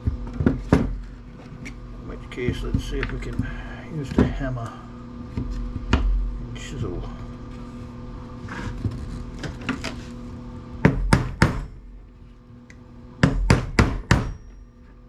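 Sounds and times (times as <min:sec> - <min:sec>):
hammer striking a chisel: 0:10.8 - 0:11.7, 0:13.2 - 0:14.7.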